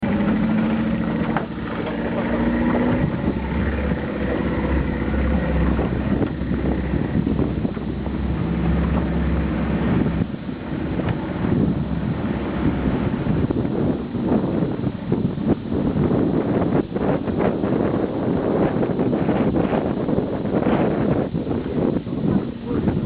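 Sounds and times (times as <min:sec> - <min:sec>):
motorboat engine running: 0:00.0 - 0:23.0
wind noise on microphone: 0:00.0 - 0:23.0.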